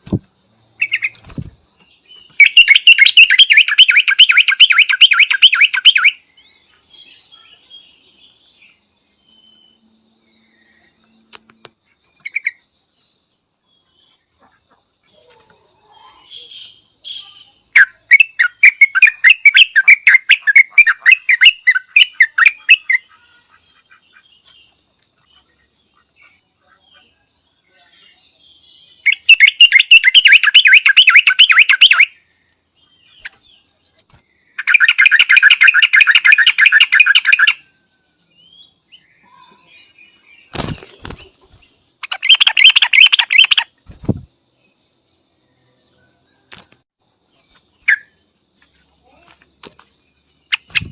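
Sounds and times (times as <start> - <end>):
bird calling rapid notes: 2.4 - 6.2, 29.1 - 32.1, 34.6 - 37.6, 42.0 - 44.2.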